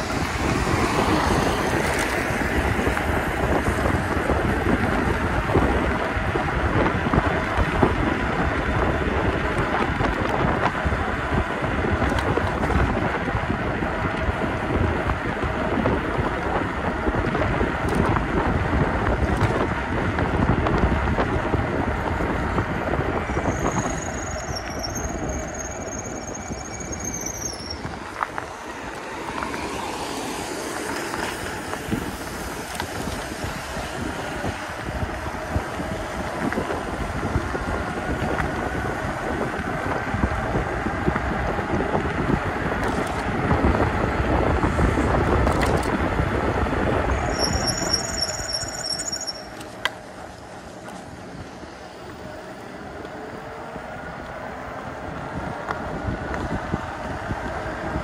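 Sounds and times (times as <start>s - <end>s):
tyre and road noise: 0.0s - 58.0s
wind buffeting microphone: 0.0s - 58.0s
high thin squeal: 23.3s - 27.9s, 47.2s - 49.6s.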